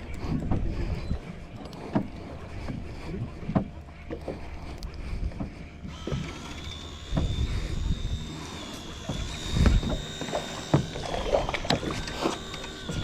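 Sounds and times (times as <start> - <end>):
water: 0.0 - 13.0
knocks on boat: 3.4 - 3.8, 7.1 - 7.6
wind on microphone: 7.0 - 8.3, 8.9 - 13.0.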